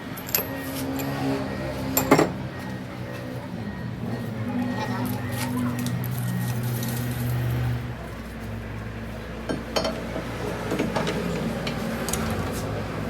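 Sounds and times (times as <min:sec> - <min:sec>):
metal parts clinking: 0:00.2 - 0:01.2.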